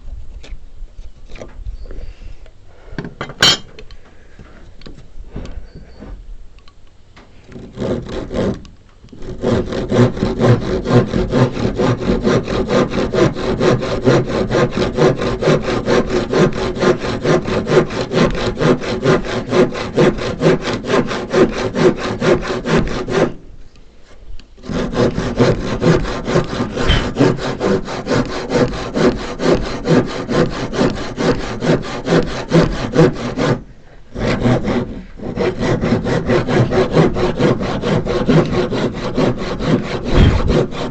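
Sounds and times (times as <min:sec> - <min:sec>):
handsaw cutting wood: 0:07.4 - 0:23.4, 0:24.6 - 0:40.9.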